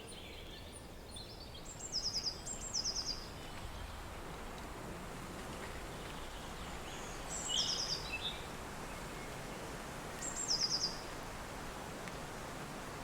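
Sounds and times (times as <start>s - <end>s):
songbird singing: 0.0s - 4.0s, 5.8s - 11.2s.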